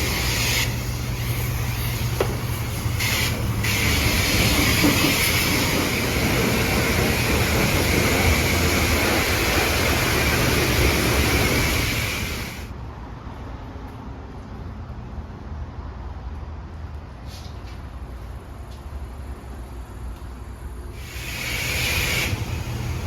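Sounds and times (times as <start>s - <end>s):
loud hiss: 0.0s - 12.7s, 20.9s - 23.0s
truck engine humming: 0.0s - 12.7s, 19.5s - 23.0s.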